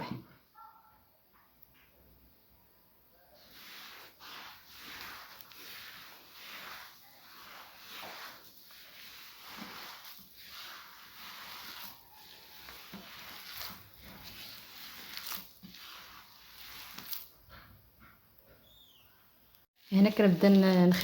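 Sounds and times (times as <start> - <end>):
wet dough squishing in a bowl: 3.2 - 17.9.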